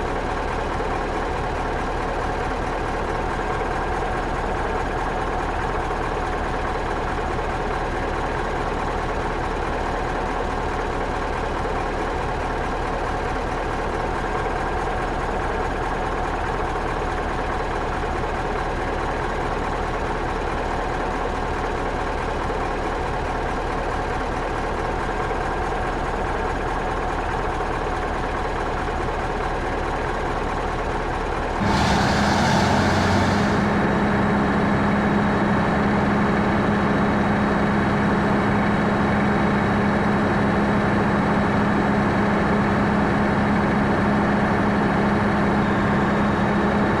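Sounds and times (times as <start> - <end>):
brief hiss: 31.6 - 33.9
ship engine running: 31.6 - 34.2.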